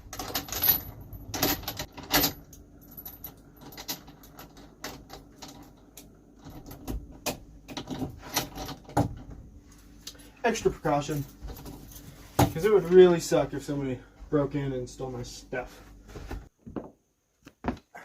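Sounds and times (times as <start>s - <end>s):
metal items jangling: 0.0s - 5.8s
gear clicking and rattling: 0.0s - 9.3s.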